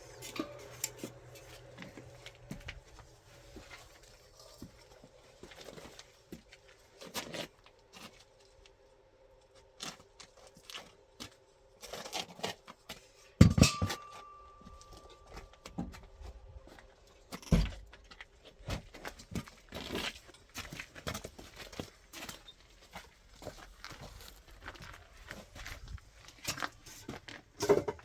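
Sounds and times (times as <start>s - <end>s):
objects knocking and clattering: 13.4s - 16.0s, 27.6s - 28.0s.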